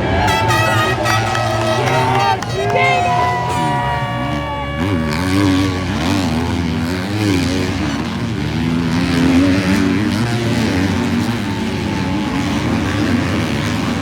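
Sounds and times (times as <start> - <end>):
motocross bikes revving: 0.0 - 14.0.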